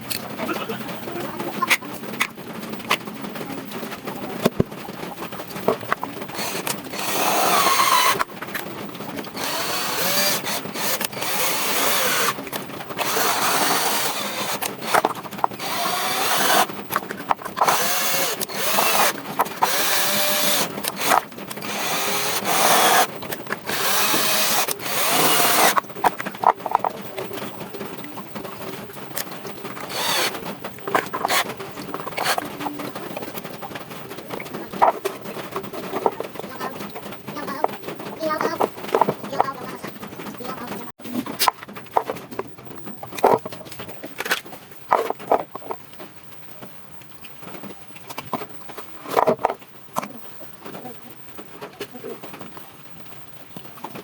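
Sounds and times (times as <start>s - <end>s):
clicks and knocks: 1.6s - 45.8s
handheld power tool bursts: 6.4s - 8.2s, 9.4s - 12.4s, 13.0s - 16.7s, 17.6s - 23.1s, 23.7s - 25.8s, 29.9s - 30.4s.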